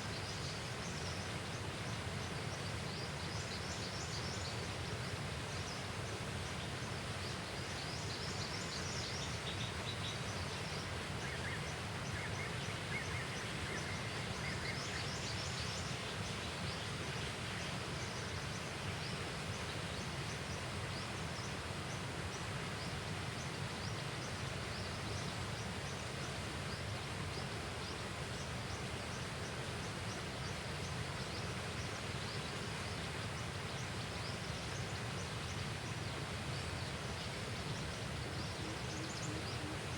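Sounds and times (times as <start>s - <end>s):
steady outdoor hiss: 0.0s - 39.9s.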